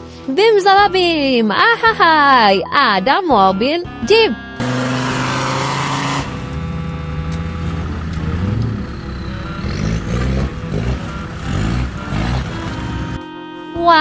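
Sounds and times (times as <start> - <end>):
car engine revving: 4.6 - 13.2.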